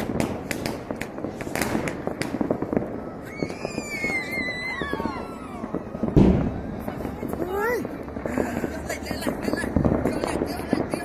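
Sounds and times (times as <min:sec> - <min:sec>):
fireworks cracking and popping: 0:00.0 - 0:11.0
descending high whistle: 0:03.2 - 0:05.7.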